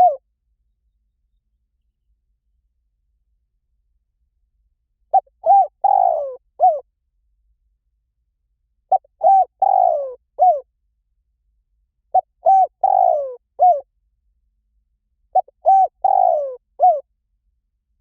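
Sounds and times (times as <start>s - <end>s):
dove cooing: 0.0s - 0.2s, 5.1s - 6.8s, 8.9s - 10.6s, 12.1s - 13.8s, 15.4s - 17.0s.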